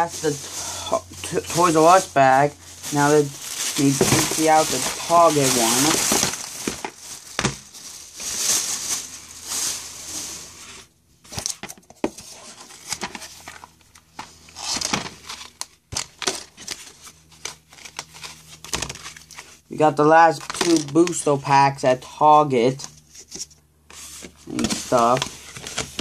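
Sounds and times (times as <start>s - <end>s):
plastic bag crinkling: 0.0s - 10.7s, 12.4s - 19.6s.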